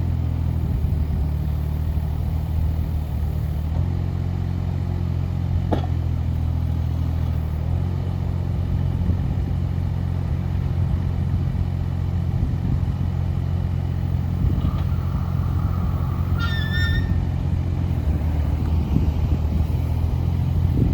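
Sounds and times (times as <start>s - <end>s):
excavator diesel engine running: 0.0s - 20.9s
high squeal: 14.0s - 20.1s.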